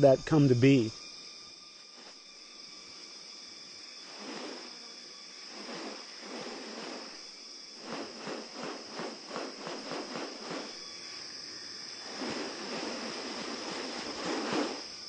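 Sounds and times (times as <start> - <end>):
insects buzzing: 0.0 - 15.0
rasping strokes: 4.1 - 4.8, 5.5 - 7.2, 7.8 - 10.8, 12.0 - 15.0.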